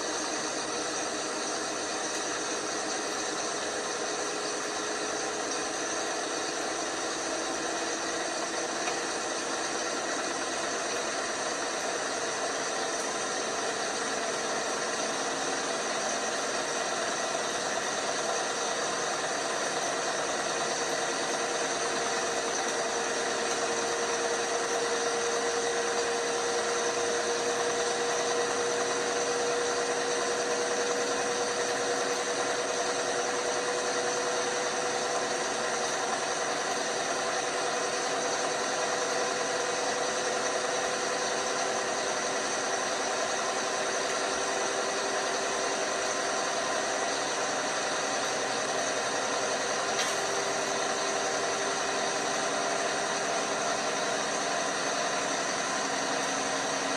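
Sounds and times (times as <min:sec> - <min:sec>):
motor whine: 0:00.0 - 0:56.9
washing machine whirring: 0:00.0 - 0:56.9.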